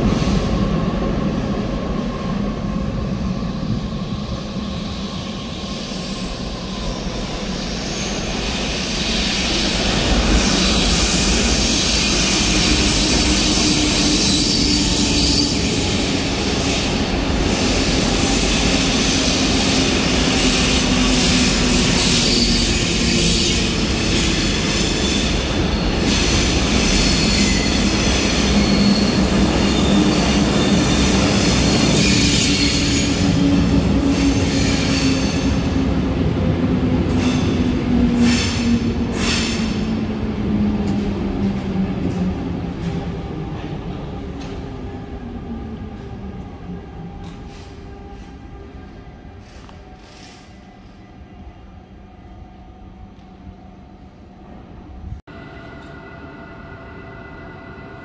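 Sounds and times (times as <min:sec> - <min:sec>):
train running drone: 0:00.0 - 0:58.0
train wheels squealing: 0:02.9 - 0:35.9, 0:37.0 - 0:40.0, 0:47.1 - 0:52.0.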